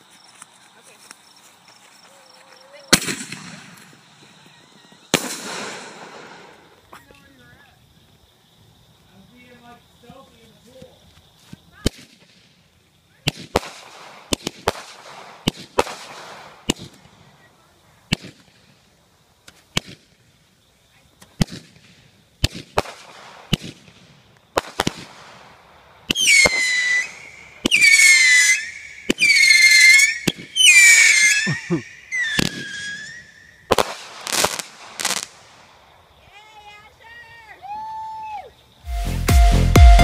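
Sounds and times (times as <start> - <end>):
fireworks bangs: 2.9 - 6.9, 13.2 - 17.4, 21.3 - 35.7
high-pitched firework shrieks: 4.1 - 6.7, 26.1 - 35.3.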